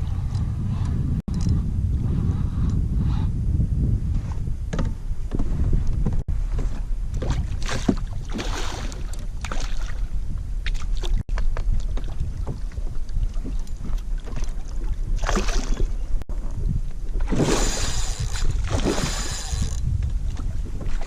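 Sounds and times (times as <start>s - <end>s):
wind rumbling on microphone: 0.0s - 21.0s
water sloshing against hull: 4.7s - 21.0s.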